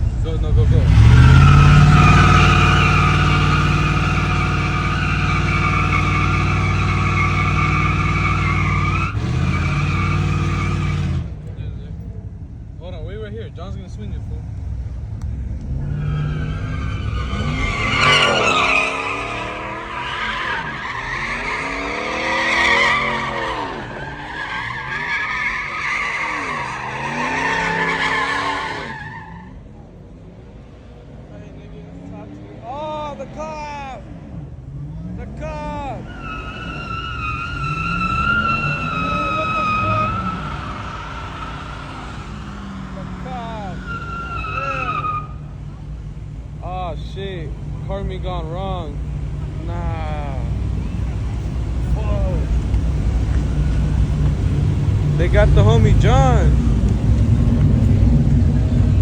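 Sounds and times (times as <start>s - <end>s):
car engine revving: 0.0s - 59.0s
tyres squealing: 0.8s - 11.2s, 15.7s - 29.6s, 35.3s - 47.9s.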